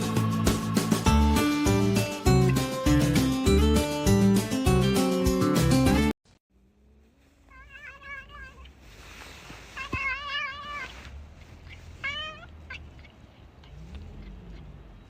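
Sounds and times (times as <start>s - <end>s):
cat meowing: 7.5s - 8.8s, 9.6s - 14.7s.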